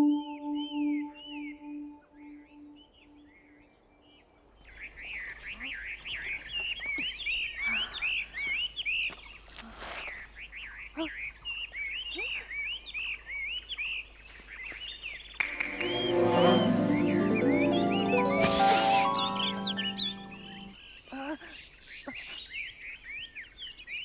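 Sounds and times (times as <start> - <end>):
birds chirping: 0.0 - 2.9, 14.4 - 24.0.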